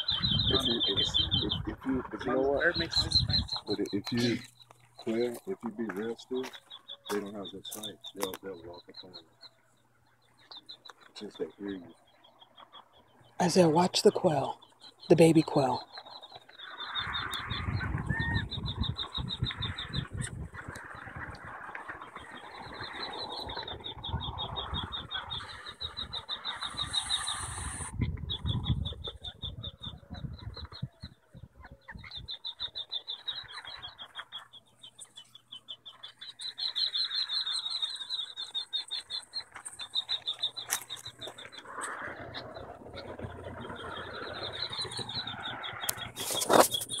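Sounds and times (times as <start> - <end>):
low rumble of wind: 0.0 - 6.4, 16.0 - 32.7, 40.4 - 47.0.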